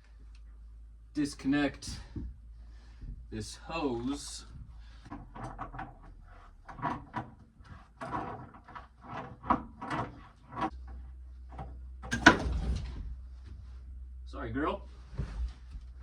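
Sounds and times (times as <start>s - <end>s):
threaded coupling creaking: 8.0s - 13.2s.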